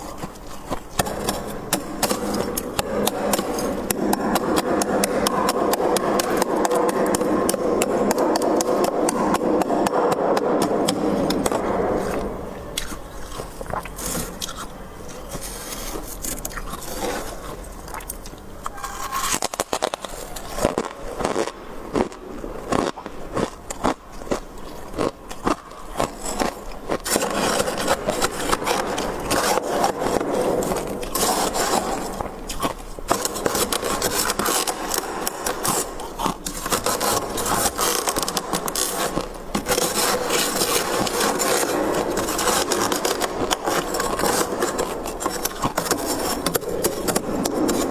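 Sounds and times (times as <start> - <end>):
freezer frost being scraped: 0.0 - 47.9.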